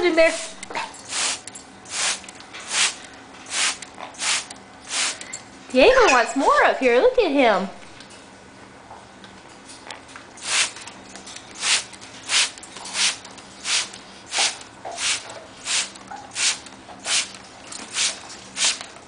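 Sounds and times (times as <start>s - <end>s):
spray bottle squirting water: 0.3s - 5.2s, 10.4s - 10.9s, 11.6s - 19.0s.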